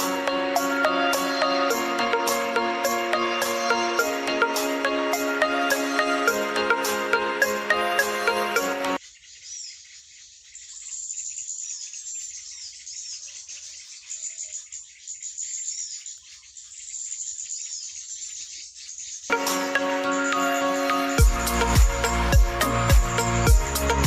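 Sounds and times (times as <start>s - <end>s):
music: 0.0s - 9.0s, 19.3s - 24.0s
birds chirping and calling: 0.0s - 24.0s.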